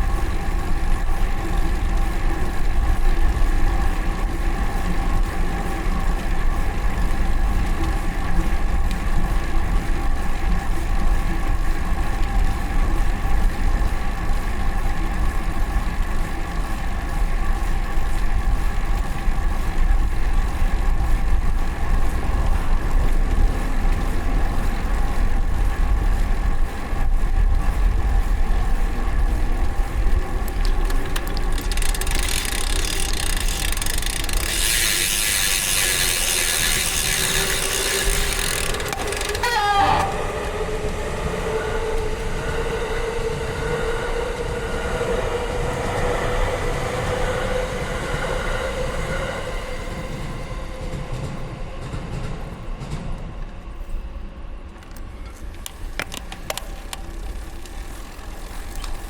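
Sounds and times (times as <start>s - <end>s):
low wind: 0.0s - 59.0s
freewheel hub buzzing: 27.1s - 41.2s, 54.8s - 59.0s.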